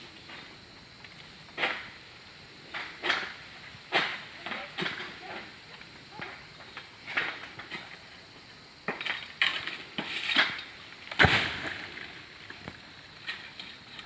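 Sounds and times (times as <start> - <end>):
sickle knocking and scraping fronds: 8.9 - 14.0
loud thud: 11.2 - 11.8.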